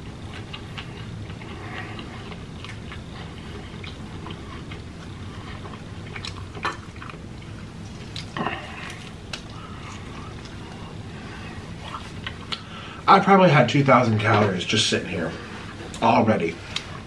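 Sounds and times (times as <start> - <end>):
close chewing of food: 0.0 - 12.8
steady low hum: 0.0 - 17.0
wet mouth clicks and smacks: 12.2 - 12.7.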